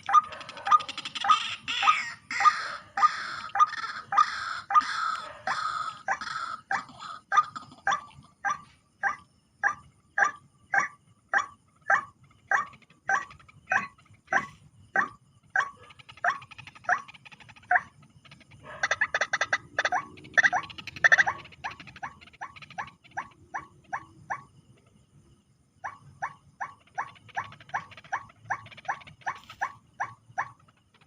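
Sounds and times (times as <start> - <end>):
waterhen calling harsh notes: 1.2 - 6.6.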